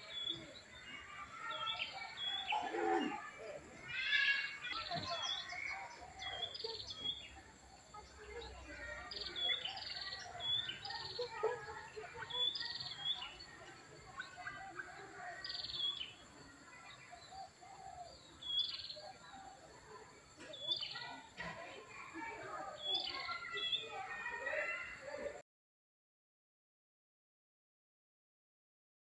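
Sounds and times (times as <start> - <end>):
faint twittering: 0.0 - 21.4
small birds chirping: 0.0 - 25.4.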